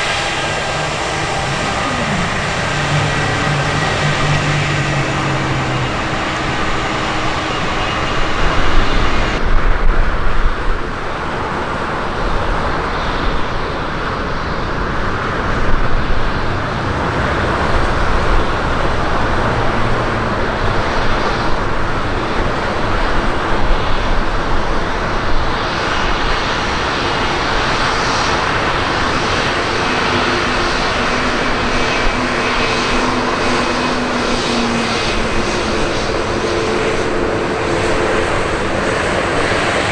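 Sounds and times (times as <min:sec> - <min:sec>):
jet engines roaring: 0:00.0 - 0:39.9.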